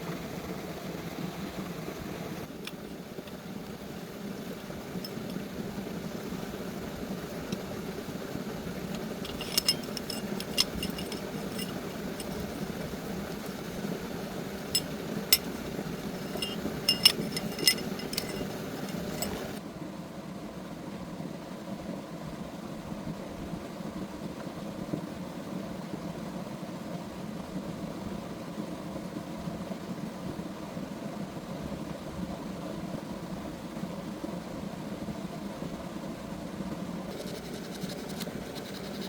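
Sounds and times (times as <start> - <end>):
steady low hum: 0.0 - 22.0, 31.9 - 39.0
metal tools clinking: 5.0 - 5.4, 8.9 - 12.7, 14.7 - 19.6.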